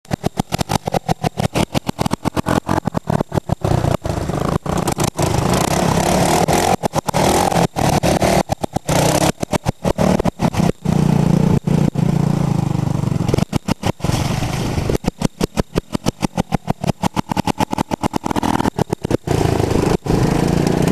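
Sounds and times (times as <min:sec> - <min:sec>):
three-wheeler engine revving: 0:00.1 - 0:20.9.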